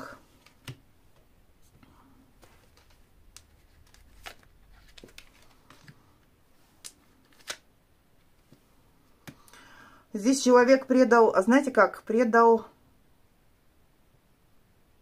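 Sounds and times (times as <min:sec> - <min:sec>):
cards clicking and tapping: 0:02.4 - 0:06.0, 0:06.8 - 0:07.6, 0:09.2 - 0:09.5.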